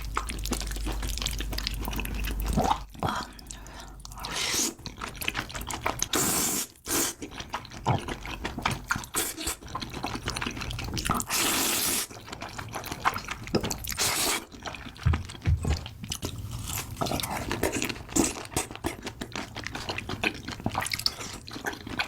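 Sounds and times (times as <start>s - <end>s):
squelchy chewing: 0.0s - 22.0s
wet noodle slurps: 4.2s - 8.0s, 11.0s - 14.9s.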